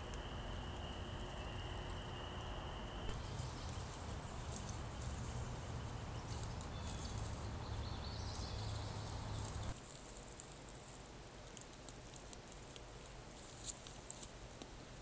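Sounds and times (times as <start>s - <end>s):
small bird chirping: 0.0s - 9.8s
low outdoor rumble: 0.0s - 11.1s.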